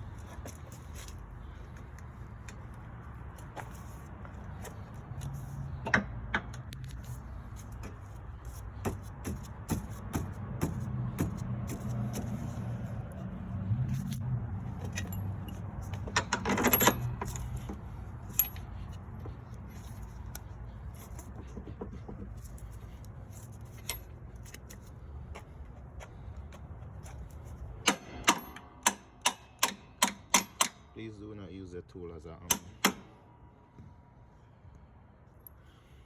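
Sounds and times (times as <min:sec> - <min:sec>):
sharp metallic taps: 0:07.8 - 0:12.4, 0:27.8 - 0:30.9, 0:32.5 - 0:33.1
metal tools clinking: 0:13.9 - 0:21.4, 0:22.3 - 0:24.9.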